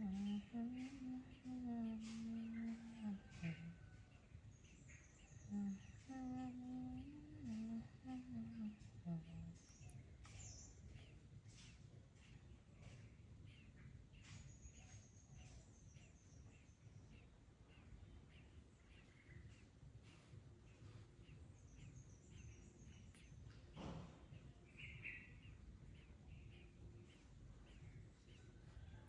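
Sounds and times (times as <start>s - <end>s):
low room rumble: 0.0s - 15.2s
faint bird chirps: 0.0s - 29.0s.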